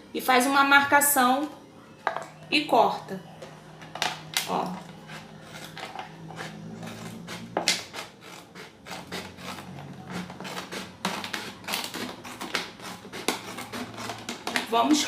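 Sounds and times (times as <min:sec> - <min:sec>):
plastic bottle crackling: 0:07.2 - 0:15.0.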